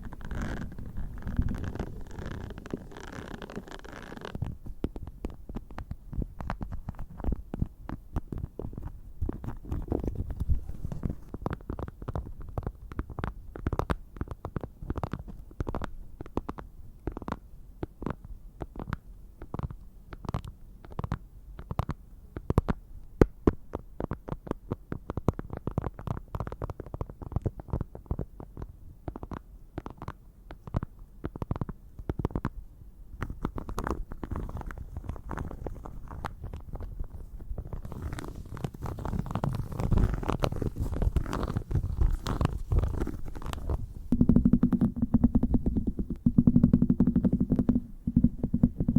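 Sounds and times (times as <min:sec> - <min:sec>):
tapping on plastic case: 0:42.2 - 0:48.9.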